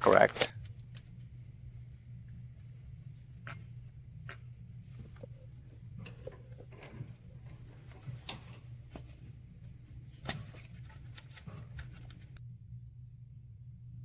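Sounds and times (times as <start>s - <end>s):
steady low hum: 0.0s - 14.0s
engine part clicking and rubbing: 3.4s - 9.3s.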